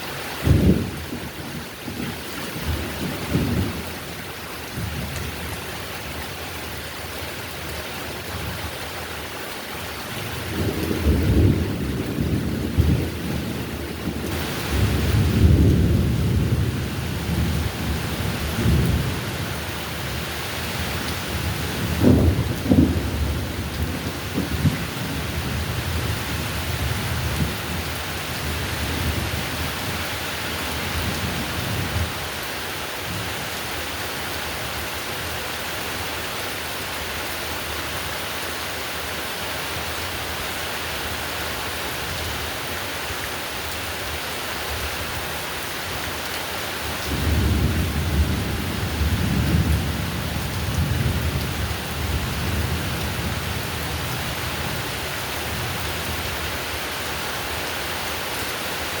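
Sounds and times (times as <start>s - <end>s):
heavy rain falling: 0.0s - 59.0s
rolling thunder: 0.4s - 4.0s, 10.3s - 20.1s, 20.8s - 29.9s, 47.0s - 54.8s.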